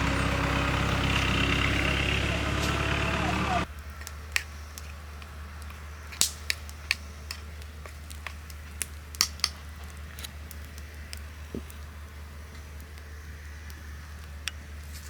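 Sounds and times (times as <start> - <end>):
sharp clicks and crackles: 3.7 - 15.0.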